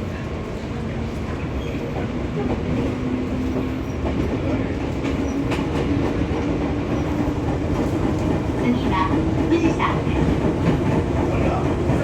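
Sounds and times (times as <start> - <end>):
train wheels clacking on rails: 1.2 - 12.0.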